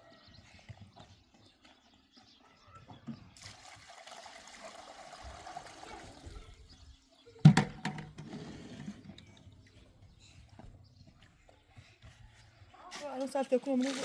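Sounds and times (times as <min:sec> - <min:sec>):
water pouring: 0:03.4 - 0:06.7, 0:13.7 - 0:14.0.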